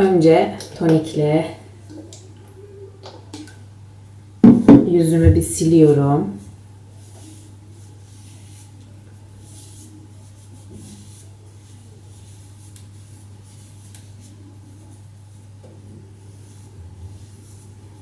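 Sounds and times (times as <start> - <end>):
soft rubbing swishes on skin: 5.4 - 18.0.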